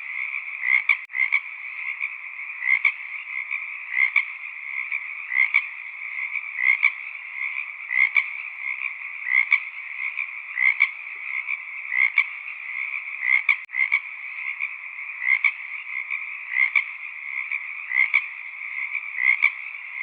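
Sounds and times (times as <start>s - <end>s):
chorus of frogs calling: 0.0s - 20.0s.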